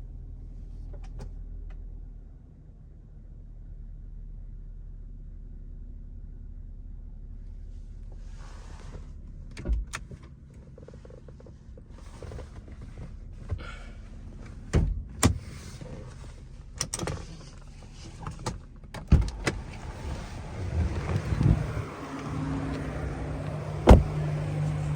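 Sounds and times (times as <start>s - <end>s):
car engine idling: 17.4s - 24.9s.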